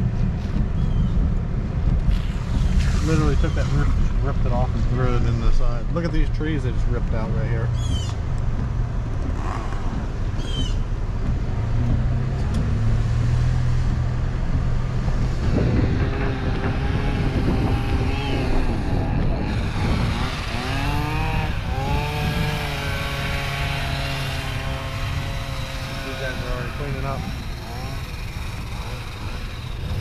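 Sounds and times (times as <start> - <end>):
car engine and road noise: 0.0 - 30.0
second engine revving: 7.0 - 30.0.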